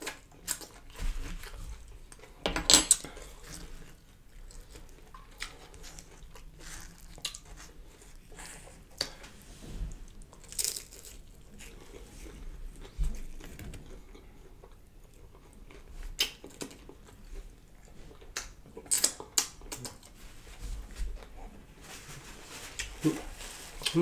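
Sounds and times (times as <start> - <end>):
wet chewing smacks and clicks: 3.0 - 9.2, 12.8 - 20.2.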